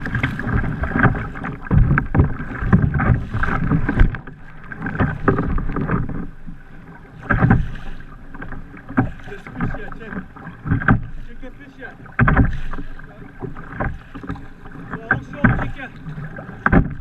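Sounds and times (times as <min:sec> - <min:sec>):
water splashing around kayak: 0:00.0 - 0:17.0.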